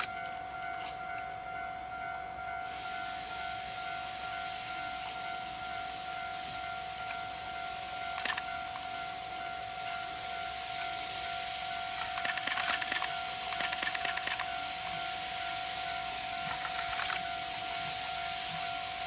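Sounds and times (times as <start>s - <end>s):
high ringing tone: 0.0s - 19.0s
steam locomotive hissing: 0.0s - 19.0s
camera shutter clicks: 8.2s - 8.5s, 12.0s - 14.5s, 16.6s - 17.2s.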